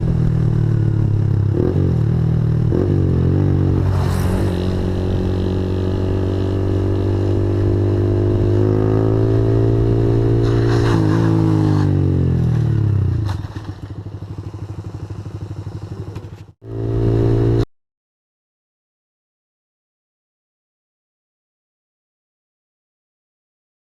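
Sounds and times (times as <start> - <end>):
motorcycle engine revving: 0.0 - 17.7.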